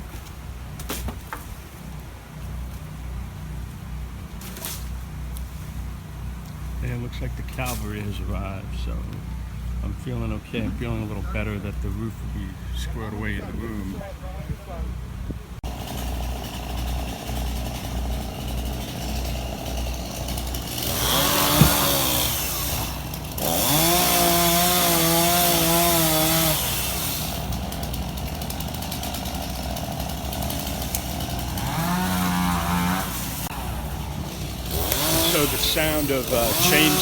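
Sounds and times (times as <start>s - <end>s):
chainsaw engine revving: 15.6s - 37.0s.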